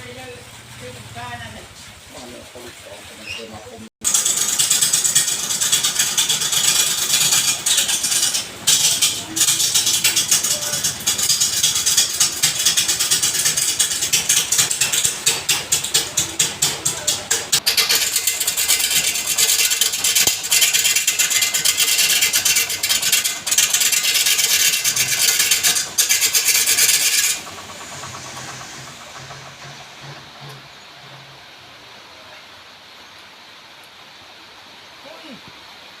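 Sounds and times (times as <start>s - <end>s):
wood scraping on a spinning lathe: 3.2s - 31.6s.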